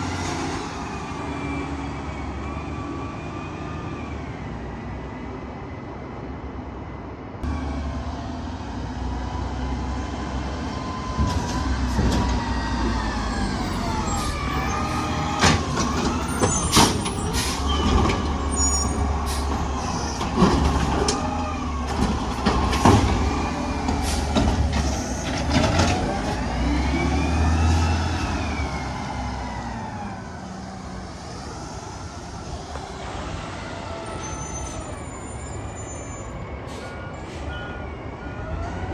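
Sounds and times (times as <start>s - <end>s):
truck engine revving: 7.4s - 35.0s.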